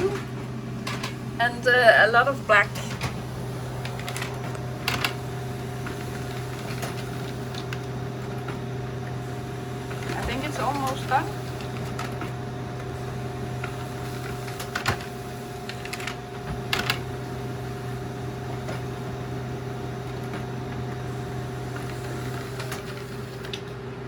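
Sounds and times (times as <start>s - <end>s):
laser printer hum and whine: 0.0s - 24.0s.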